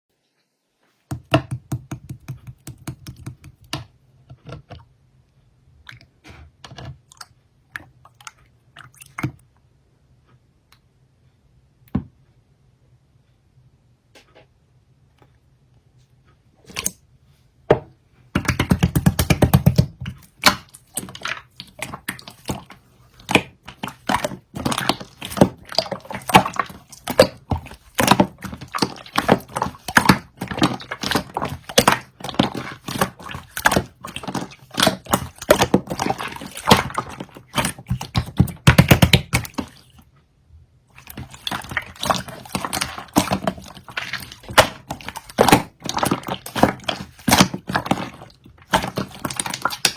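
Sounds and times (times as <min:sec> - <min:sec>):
slime squeezed by hand: 0:18.4 - 0:40.0, 0:41.0 - 0:49.9.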